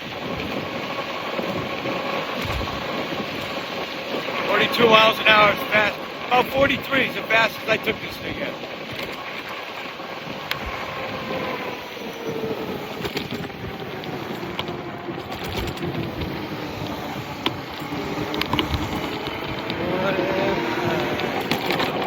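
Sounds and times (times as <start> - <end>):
tyre noise: 0.0 - 22.0
wind rushing on microphone: 0.0 - 22.0
faint motor whine: 8.5 - 22.0.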